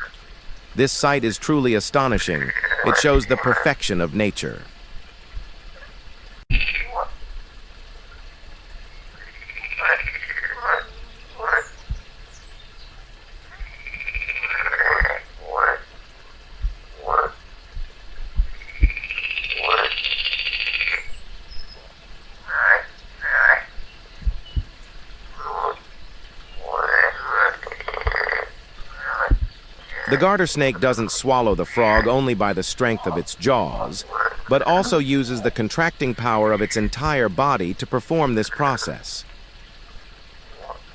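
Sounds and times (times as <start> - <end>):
frog distress cries: 29.9 - 32.2.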